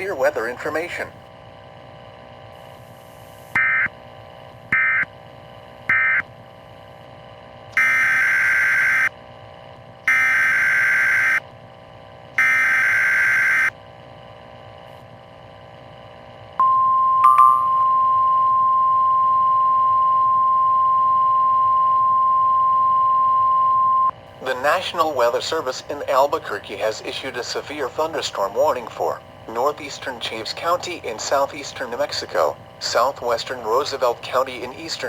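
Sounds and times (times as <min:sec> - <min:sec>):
radio hiss: 0:00.0 - 0:01.2, 0:02.5 - 0:03.6, 0:24.3 - 0:35.0.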